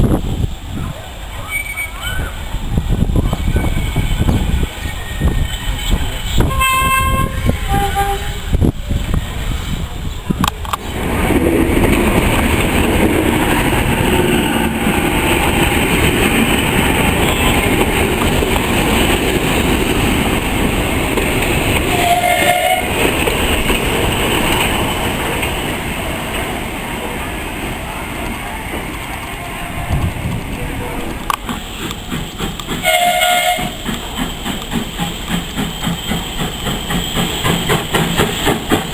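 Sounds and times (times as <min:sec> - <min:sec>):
train wheels clattering on rails: 0:02.1 - 0:27.2, 0:28.2 - 0:38.9
short high train toot: 0:06.3 - 0:08.4, 0:21.9 - 0:23.0, 0:32.8 - 0:34.0.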